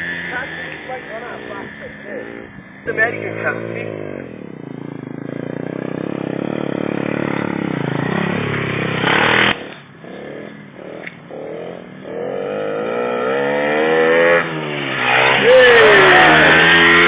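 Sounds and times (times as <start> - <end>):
pit bike engine running: 0.0 - 17.0
loud rush of noise: 14.5 - 17.0.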